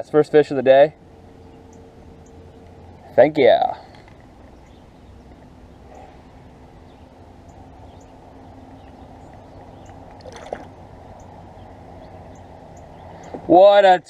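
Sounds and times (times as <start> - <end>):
river water washing around kayak: 9.0 - 12.4.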